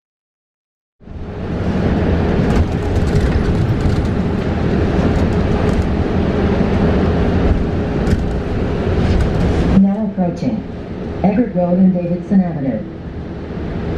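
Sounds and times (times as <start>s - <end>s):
bus road rumble: 1.0s - 13.9s
cabin rattles: 2.5s - 6.0s.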